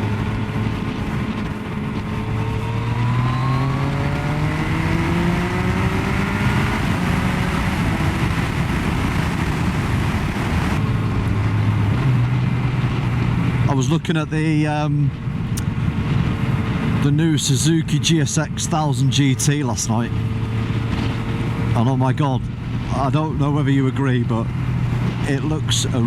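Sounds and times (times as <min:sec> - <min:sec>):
motorcycle engine accelerating: 0:00.0 - 0:13.8, 0:19.4 - 0:26.0
wind rush on microphone: 0:00.0 - 0:26.0.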